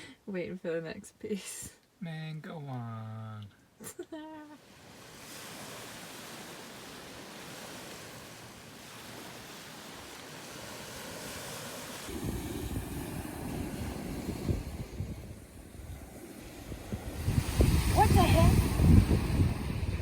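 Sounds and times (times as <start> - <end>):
waves washing onto a beach: 4.6 - 20.0.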